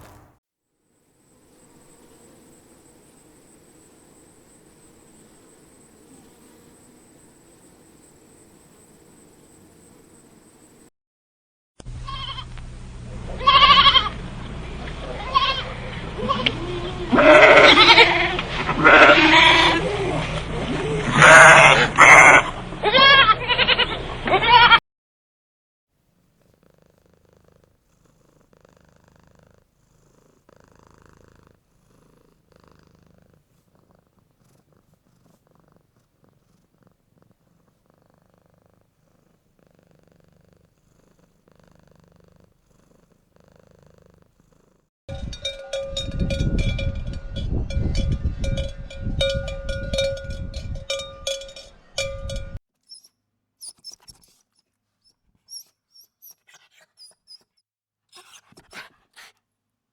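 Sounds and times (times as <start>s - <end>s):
cat purring: 1.2s - 10.8s, 26.2s - 44.9s.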